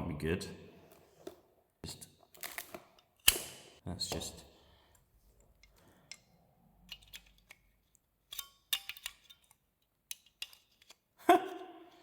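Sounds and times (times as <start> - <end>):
plug adapter clicking and crackling: 2.4 - 3.6.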